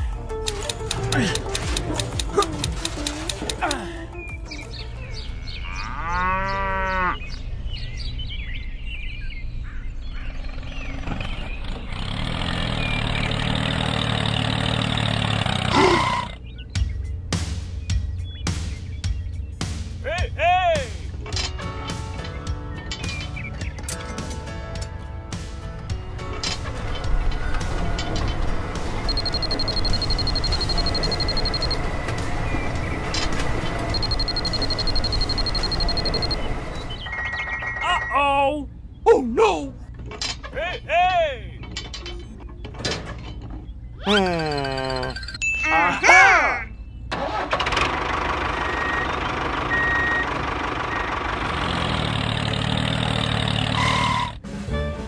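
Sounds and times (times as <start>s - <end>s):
tractor engine running: 0.0s - 3.8s, 10.4s - 15.7s, 25.3s - 37.6s, 47.1s - 54.0s
high electronic beeping: 29.1s - 31.9s, 33.9s - 38.2s, 44.1s - 45.4s.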